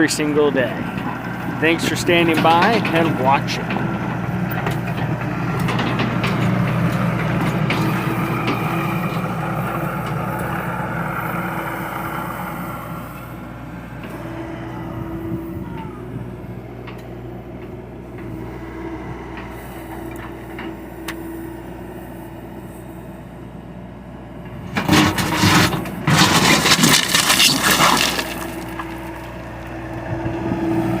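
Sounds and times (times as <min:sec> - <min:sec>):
excavator crunching and scraping ground: 0:00.0 - 0:13.3, 0:24.4 - 0:31.0
excavator engine running: 0:00.0 - 0:31.0.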